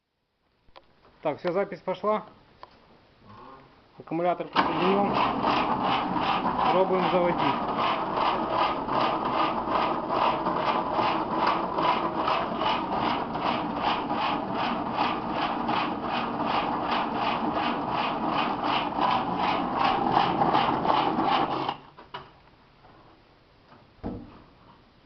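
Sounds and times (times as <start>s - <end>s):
car starter cranking engine: 4.5s - 6.2s.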